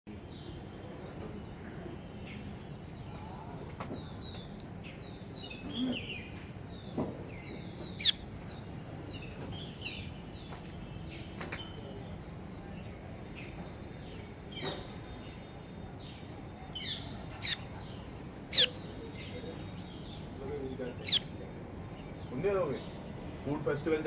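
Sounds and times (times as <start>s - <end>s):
small birds chirping: 5.1s - 8.3s, 14.5s - 23.0s
loud sharp bird call: 8.0s - 8.2s, 17.4s - 17.7s, 18.5s - 18.9s, 21.0s - 21.3s.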